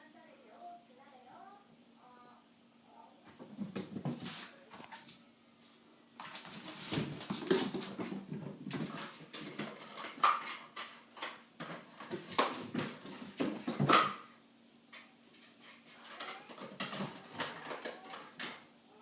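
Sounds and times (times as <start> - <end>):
kitten playing with cardboard tube: 6.2 - 14.1.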